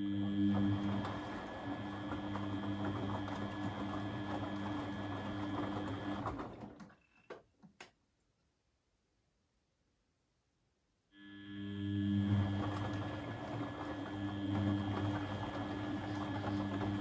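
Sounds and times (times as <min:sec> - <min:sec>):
washing machine running: 0:00.0 - 0:07.1, 0:11.4 - 0:17.0.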